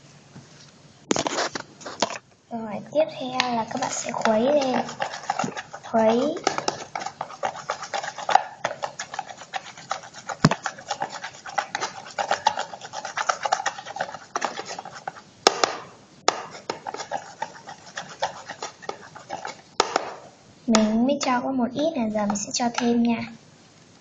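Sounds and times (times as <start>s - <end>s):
spoon scraping a bowl: 3.3s - 20.3s.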